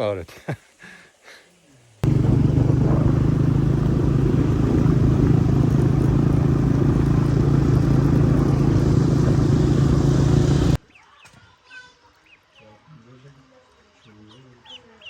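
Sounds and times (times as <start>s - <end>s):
motor engine running: 2.0s - 10.8s.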